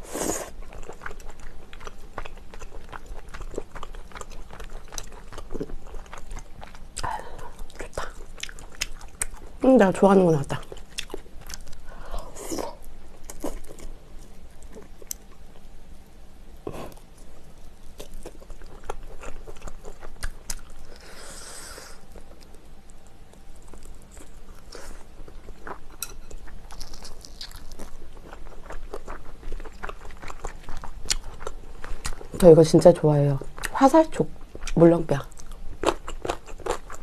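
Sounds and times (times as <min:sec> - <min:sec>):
close-up crunchy chewing: 0:00.0 - 0:09.6, 0:10.5 - 0:15.7, 0:16.6 - 0:32.5, 0:34.4 - 0:37.0
breathy hiss: 0:20.8 - 0:22.1.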